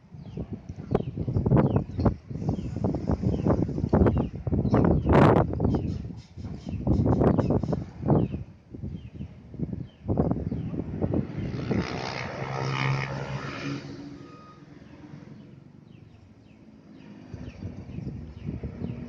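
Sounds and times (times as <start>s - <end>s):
motor vehicle passing: 10.2s - 19.0s.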